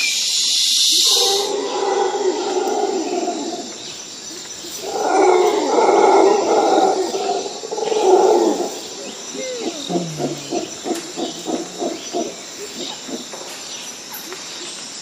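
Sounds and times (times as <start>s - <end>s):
rough animal calls: 4.7s - 13.7s.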